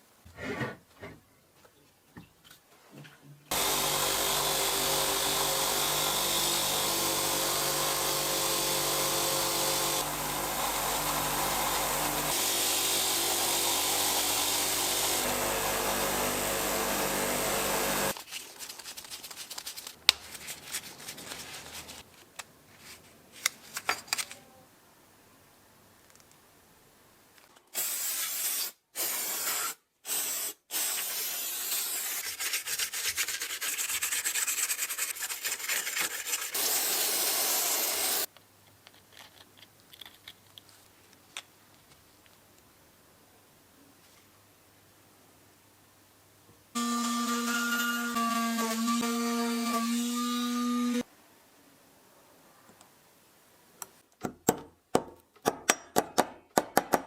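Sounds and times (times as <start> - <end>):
loud hiss-like grinding: 3.5 - 18.1, 36.5 - 38.3
power tool motor running: 3.5 - 18.1, 46.8 - 51.0
clicks and knocks of parts handled: 23.4 - 24.5, 38.3 - 42.6.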